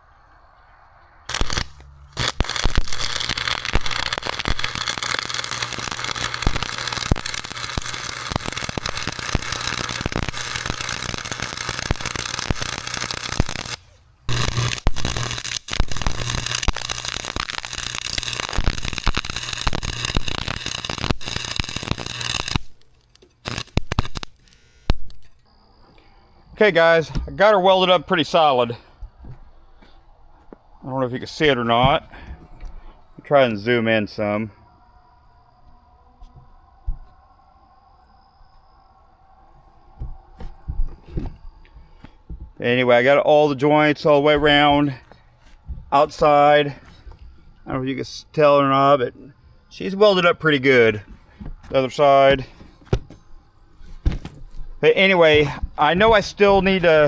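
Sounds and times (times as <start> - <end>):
short welding bursts: 1.3 - 25.1
welding arc crackling: 1.3 - 25.4
low electrical hum: 1.3 - 25.8.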